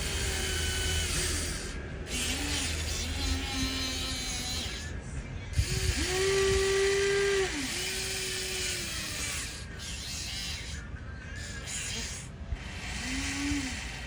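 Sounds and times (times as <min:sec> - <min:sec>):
toy excavator motors whining: 0:00.0 - 0:14.0.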